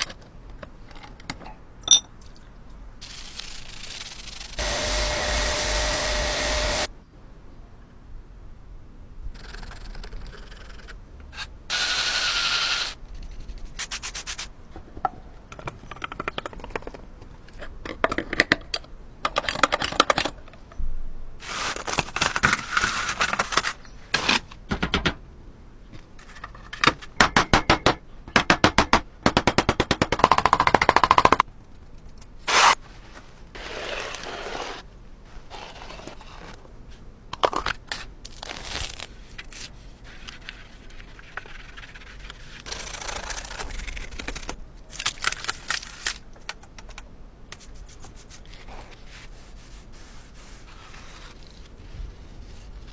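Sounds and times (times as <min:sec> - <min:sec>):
mechanical whir: 0:04.5 - 0:06.9
metal scraping: 0:04.6 - 0:06.9.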